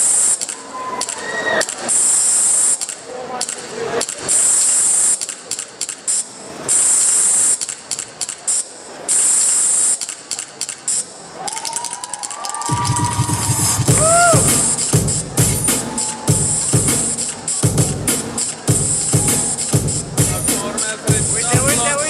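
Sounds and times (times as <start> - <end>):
dance music soundtrack: 12.7 - 22.0.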